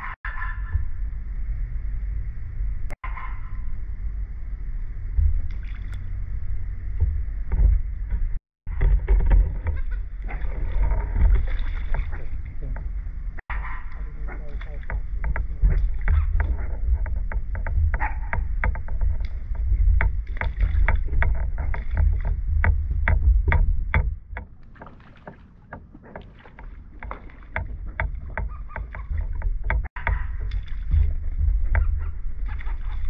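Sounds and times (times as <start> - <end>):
low rumble: 0.0 - 24.7, 26.8 - 33.0
water lapping against dock: 5.2 - 33.0.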